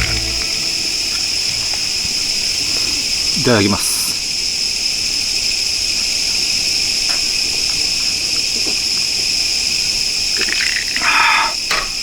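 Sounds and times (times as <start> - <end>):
crickets chirring: 0.2 - 12.0.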